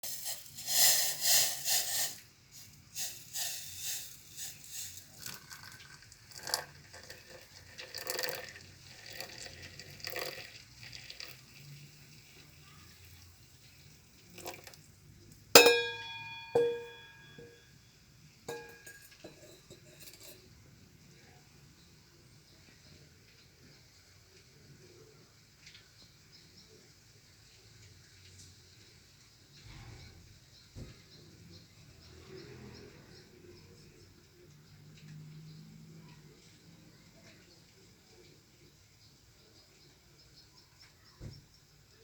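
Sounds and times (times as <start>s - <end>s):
glassware clinking: 3.0s - 8.5s, 15.6s - 17.8s, 18.5s - 20.5s.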